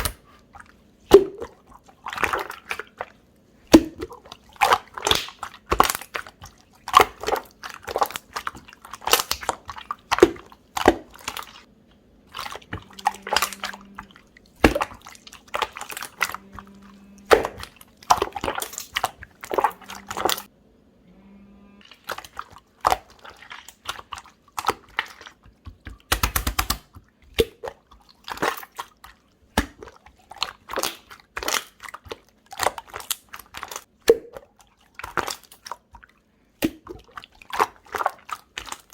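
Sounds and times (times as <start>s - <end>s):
slime clicking and popping: 3.7s - 6.3s, 25.7s - 27.7s.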